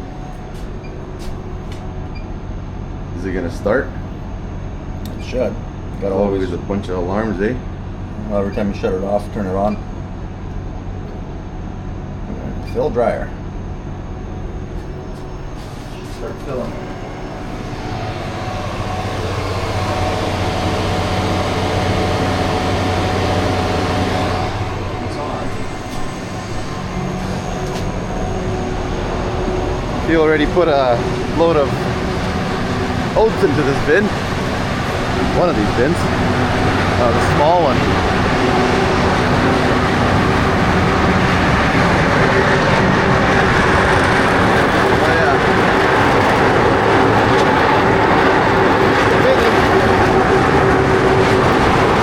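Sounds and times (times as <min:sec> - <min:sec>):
low machinery hum: 0:00.0 - 0:52.0
thin steady whine: 0:00.0 - 0:52.0
rushing grain noise: 0:15.6 - 0:52.0.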